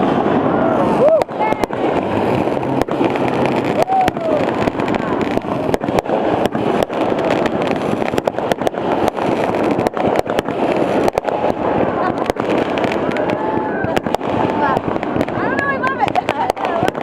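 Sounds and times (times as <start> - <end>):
fireworks crackling: 0.0 - 17.0
fireworks cracks and pops: 0.0 - 17.0.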